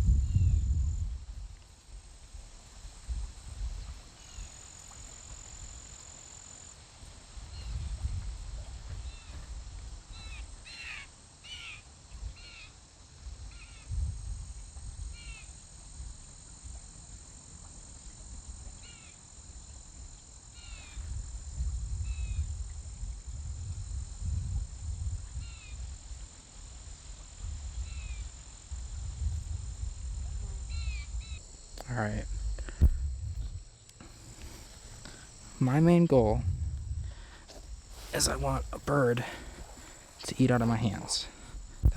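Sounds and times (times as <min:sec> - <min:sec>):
low microphone rumble: 0:00.0 - 0:01.6, 0:07.4 - 0:10.6, 0:13.3 - 0:15.3, 0:20.7 - 0:41.9.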